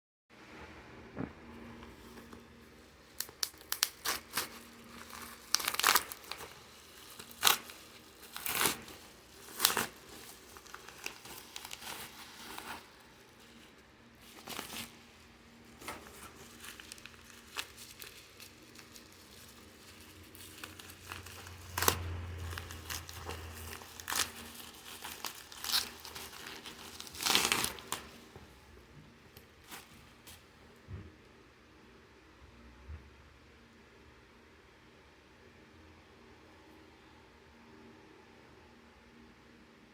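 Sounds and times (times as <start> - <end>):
plastic packaging crackling: 1.8 - 28.4
packaging tearing: 3.1 - 28.3.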